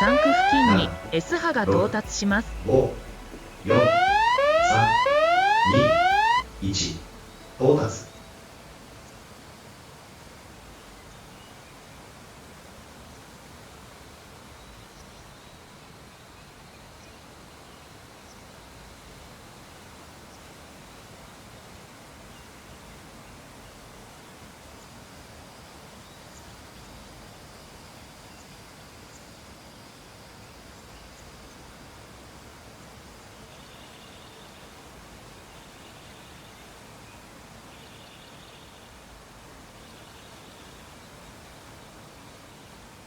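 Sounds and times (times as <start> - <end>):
high buzzing chirps: 2.1 - 7.4.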